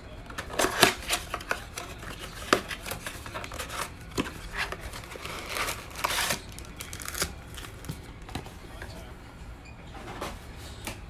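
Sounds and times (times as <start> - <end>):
plastic wrapper crinkling: 0.3 - 8.9
cardboard cards clicking: 0.3 - 9.0.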